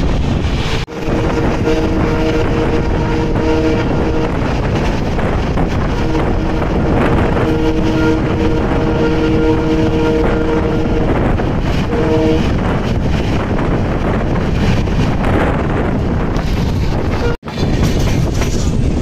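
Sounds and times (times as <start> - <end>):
rush of wheels and wind: 0.0 - 19.0
train horn blast: 0.9 - 13.0, 17.1 - 17.4.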